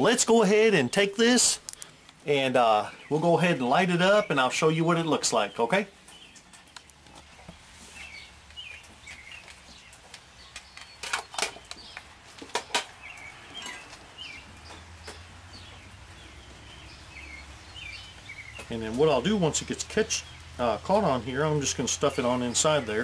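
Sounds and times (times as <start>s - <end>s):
small birds chirping: 0.0s - 23.0s
sharp handling clicks: 1.6s - 2.2s.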